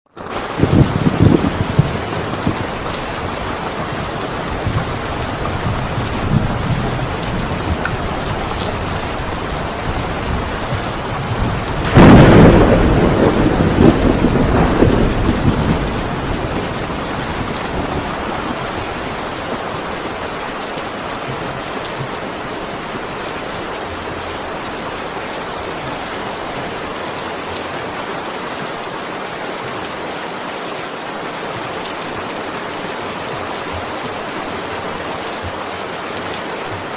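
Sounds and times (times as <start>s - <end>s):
heavy rain falling: 0.1s - 36.9s
thunder clap rumbling: 0.2s - 19.7s.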